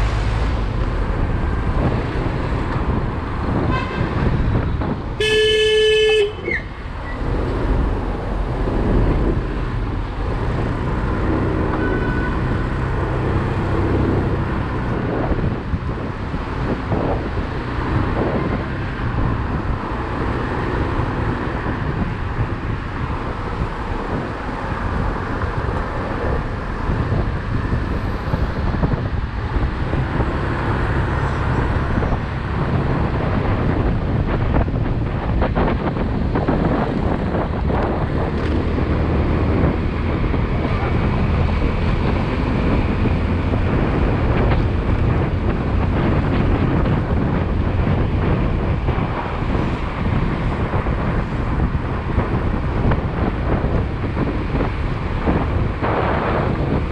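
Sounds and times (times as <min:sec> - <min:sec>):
motorcycle engine rumble: 0:00.0 - 0:56.9
road and wind noise: 0:00.0 - 0:56.9
vehicle horn honking: 0:03.7 - 0:04.2, 0:05.2 - 0:06.6.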